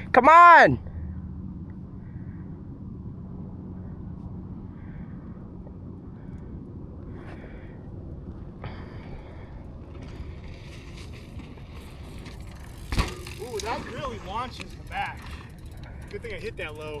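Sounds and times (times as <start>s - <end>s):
low rumbling noise: 0.8s - 17.0s
dirt bike engine running: 8.4s - 17.0s.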